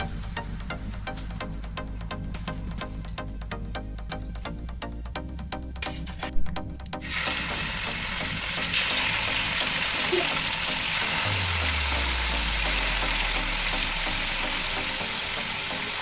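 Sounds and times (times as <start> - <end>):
food sizzling in hot oil: 7.0 - 16.0.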